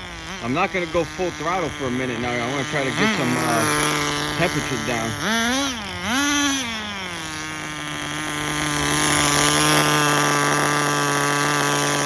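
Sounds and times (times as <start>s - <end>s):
small rc car engine running: 0.0s - 12.0s.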